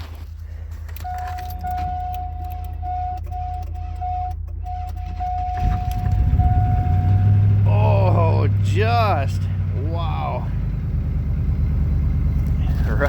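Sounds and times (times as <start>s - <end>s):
truck engine running: 0.0s - 13.0s
high warning tone: 1.0s - 9.2s.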